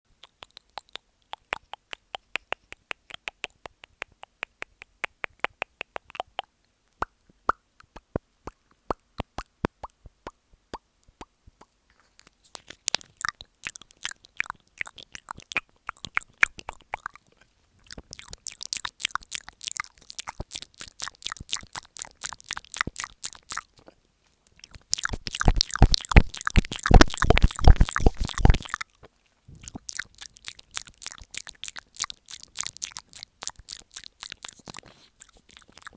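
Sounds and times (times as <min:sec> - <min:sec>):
wet mouth clicks: 0:00.1 - 0:35.9
kissing smacks: 0:00.2 - 0:11.3, 0:24.7 - 0:28.8
mouth rubbing on microphone: 0:24.7 - 0:28.8, 0:32.3 - 0:35.9.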